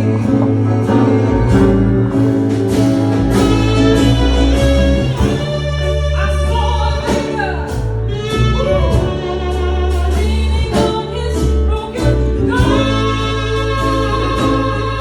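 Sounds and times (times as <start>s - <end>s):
bass notes: 0.0s - 15.0s
drum hits: 0.2s - 6.1s
person singing lead vocals: 5.9s - 15.0s.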